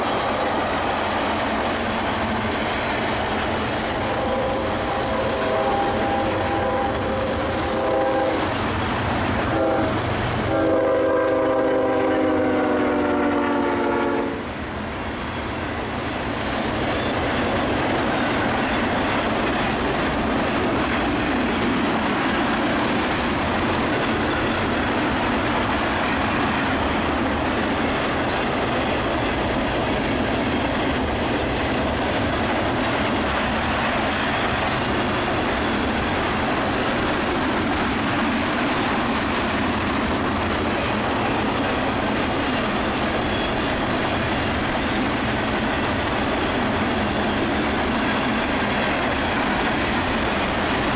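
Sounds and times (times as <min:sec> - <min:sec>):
train wheels rumbling on rails: 0:00.0 - 0:50.9
locomotive horn blasts: 0:04.0 - 0:08.5, 0:09.5 - 0:14.5.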